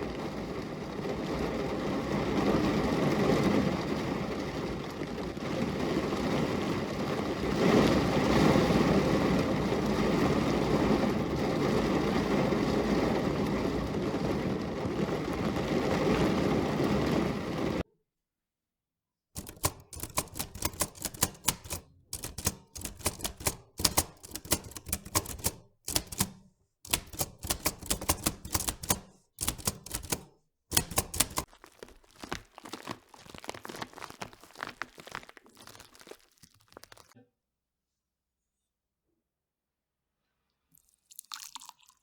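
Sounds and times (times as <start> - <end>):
crisp clicks and crackles: 19.4 - 37.2.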